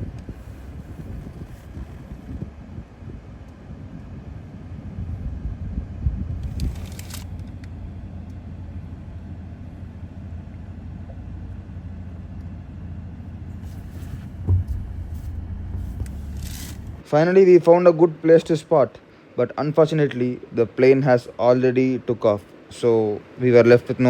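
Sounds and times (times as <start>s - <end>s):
car engine and road noise: 0.0s - 17.1s
brief rattle: 6.4s - 7.6s, 13.6s - 17.0s.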